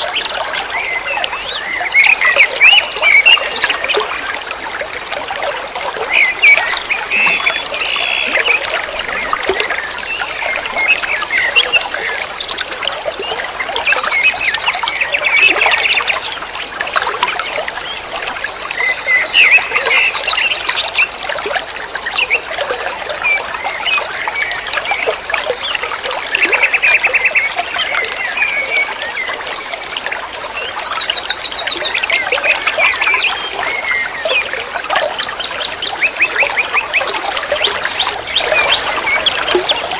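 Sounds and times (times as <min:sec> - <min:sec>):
songbird singing: 0:00.0 - 0:04.1, 0:05.1 - 0:12.4, 0:18.8 - 0:21.2, 0:21.9 - 0:29.6, 0:30.6 - 0:39.9.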